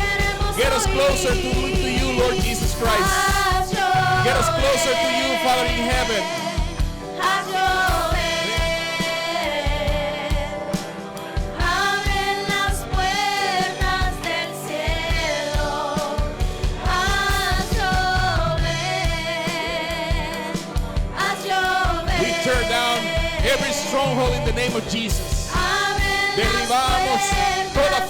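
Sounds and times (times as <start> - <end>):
band with drum beat: 0.0 - 28.0.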